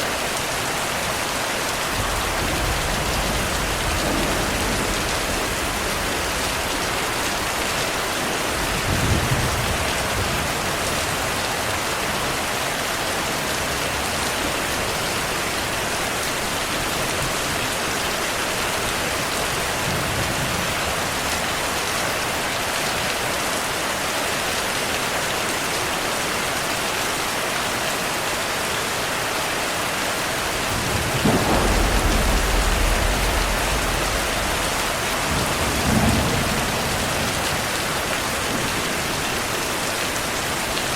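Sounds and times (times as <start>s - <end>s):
heavy rain: 0.0s - 40.9s
thunder rumbles: 1.9s - 11.6s, 30.4s - 39.5s.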